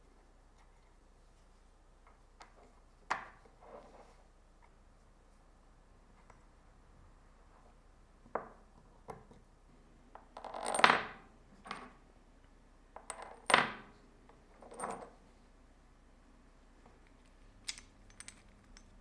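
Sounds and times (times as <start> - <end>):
metal parts knocking and clinking: 17.0 - 19.0.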